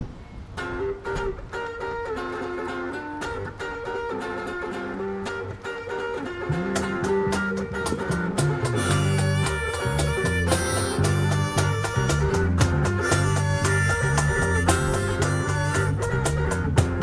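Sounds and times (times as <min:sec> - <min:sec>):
plucked guitar melody: 0:00.2 - 0:17.0
rock band playing: 0:06.2 - 0:17.0
bass line: 0:06.5 - 0:17.0.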